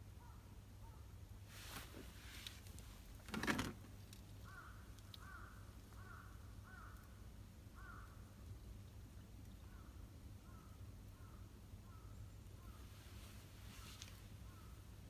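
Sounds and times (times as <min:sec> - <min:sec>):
crow cawing: 0:04.4 - 0:07.0, 0:07.8 - 0:08.1.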